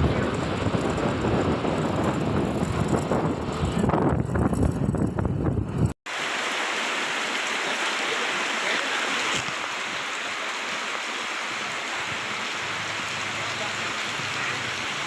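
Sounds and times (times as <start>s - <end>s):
heavy rain falling: 0.0s - 2.5s, 6.1s - 15.0s.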